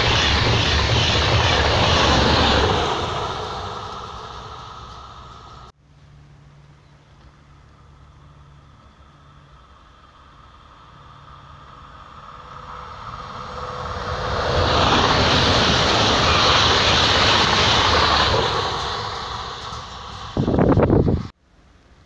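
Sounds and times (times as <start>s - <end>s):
train passing at speed: 0.0s - 5.7s, 7.4s - 21.3s.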